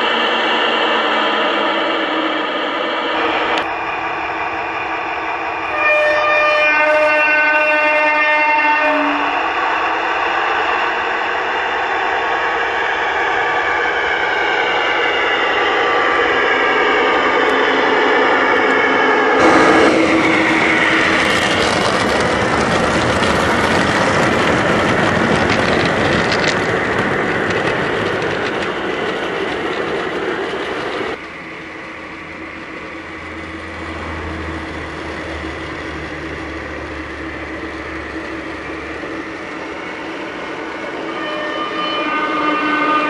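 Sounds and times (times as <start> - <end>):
model diesel locomotive sound: 0.0 - 43.0
electronic train horn: 5.6 - 9.4, 18.7 - 21.9, 40.8 - 43.0.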